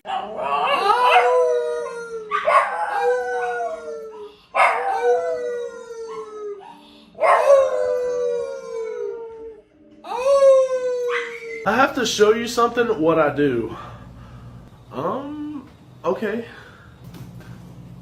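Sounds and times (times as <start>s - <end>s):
dog howling: 0.0s - 11.9s.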